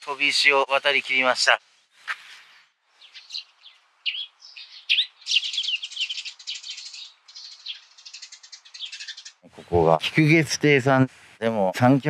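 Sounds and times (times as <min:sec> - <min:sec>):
songbirds chirping and whistling: 0:00.0 - 0:09.7
bird rattling trill: 0:03.0 - 0:09.4.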